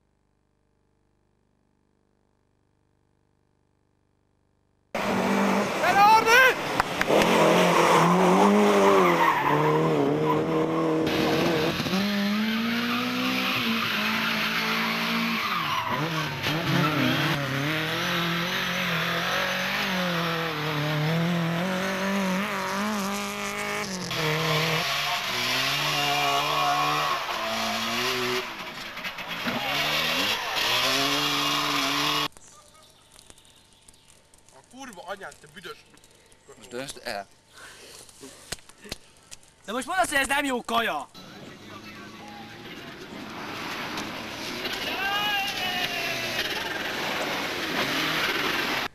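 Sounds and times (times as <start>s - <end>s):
rally car engines revving: 5.0s - 32.3s, 41.2s - 48.9s
tyres skidding and squealing: 5.0s - 32.3s, 41.2s - 48.9s.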